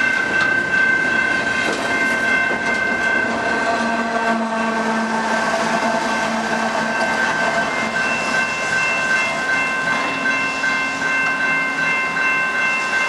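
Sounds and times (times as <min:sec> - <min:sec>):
crossing bell ringing: 0:00.0 - 0:13.0
diesel locomotive passing: 0:00.0 - 0:13.0.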